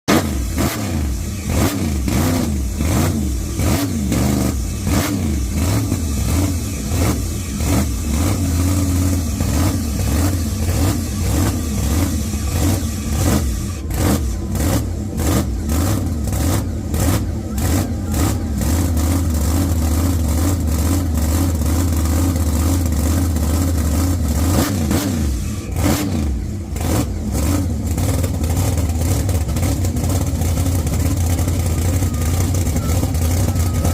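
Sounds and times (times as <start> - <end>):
car engine revving: 0.1 - 33.9.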